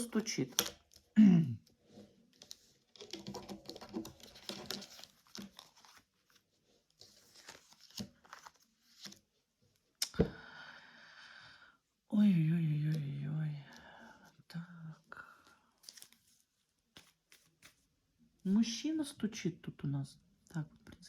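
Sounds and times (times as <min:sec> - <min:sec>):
cards rustling: 0:02.3 - 0:09.2, 0:15.8 - 0:17.9.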